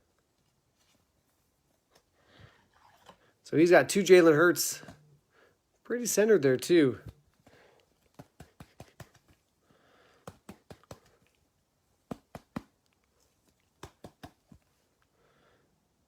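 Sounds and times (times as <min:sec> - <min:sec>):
cards clicking and tapping: 0:07.0 - 0:09.4, 0:10.2 - 0:11.3, 0:12.1 - 0:12.8, 0:13.7 - 0:14.7.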